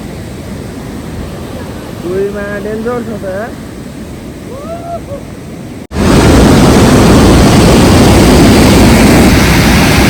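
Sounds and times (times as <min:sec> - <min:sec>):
person exclaiming: 0:04.5 - 0:05.3
loud steady rushing roar: 0:05.5 - 0:10.0.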